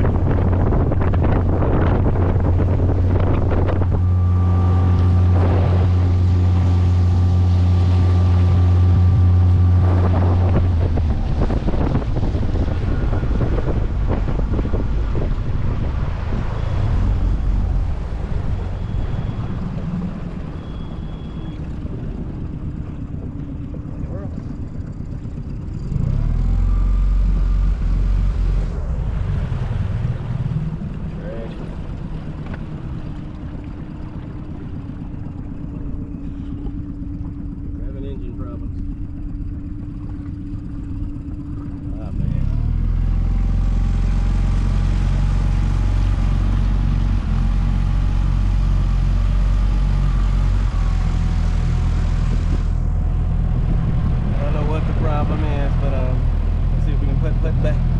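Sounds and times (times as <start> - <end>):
outboard motor running: 0.0 - 57.9.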